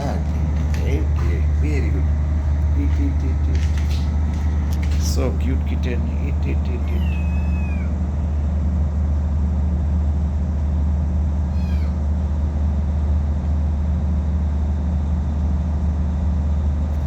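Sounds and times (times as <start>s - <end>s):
low machine hum: 0.0s - 17.0s
kitten meowing: 6.8s - 8.0s, 11.5s - 12.1s.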